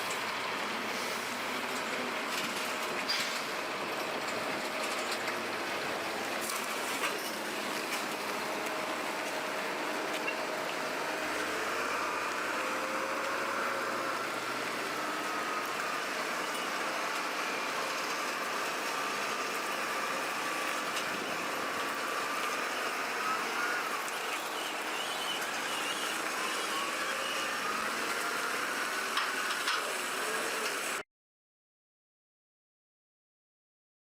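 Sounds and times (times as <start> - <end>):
heavy vehicle engine running: 0.0 - 31.0
thin wavering whine: 19.2 - 28.8.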